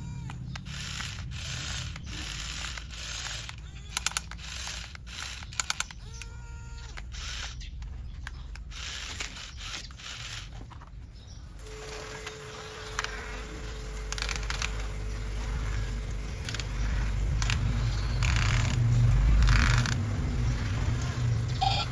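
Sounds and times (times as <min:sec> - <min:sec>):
motor whine: 0:00.0 - 0:07.6, 0:11.6 - 0:21.9
small gear motors whirring: 0:00.0 - 0:21.9
steady low hum: 0:00.0 - 0:21.9
sharp clicks: 0:00.2 - 0:10.6.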